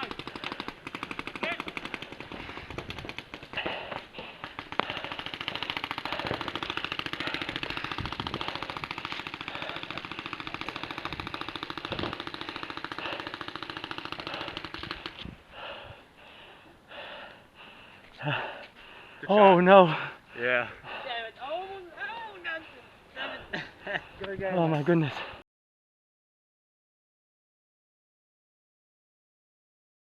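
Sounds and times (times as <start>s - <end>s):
paintball markers firing rapidly: 0.0s - 15.3s.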